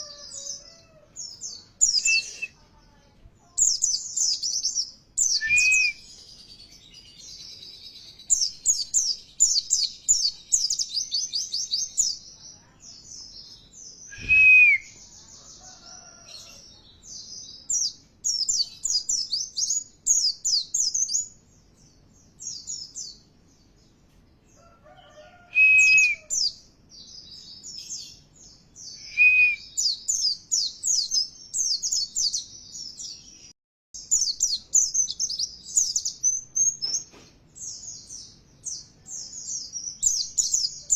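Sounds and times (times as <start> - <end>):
bird twittering chirps: 0.0 - 2.6, 3.5 - 16.2, 34.0 - 40.9
whistled bird note: 14.1 - 15.0.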